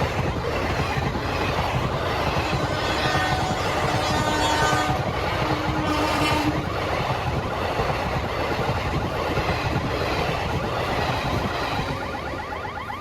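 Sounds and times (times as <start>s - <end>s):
train wheels rumbling and clattering: 0.0s - 12.0s
train horn blasts: 2.4s - 6.6s.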